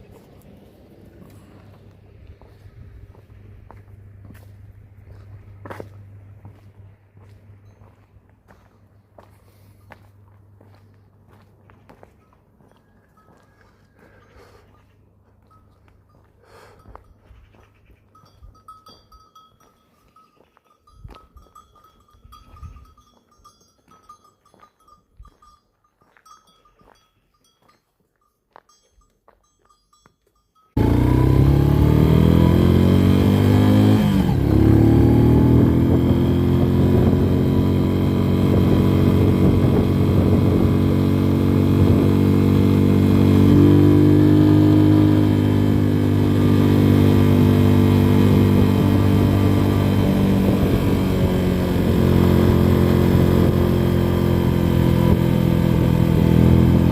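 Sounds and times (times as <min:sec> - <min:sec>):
motorcycle engine running: 0:30.8 - 0:56.9.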